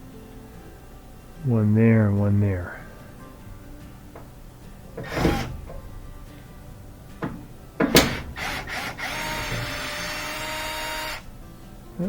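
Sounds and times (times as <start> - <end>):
tool knocking against metal: 5.0 - 5.9, 7.2 - 10.2
cordless drill-driver running: 8.1 - 11.2.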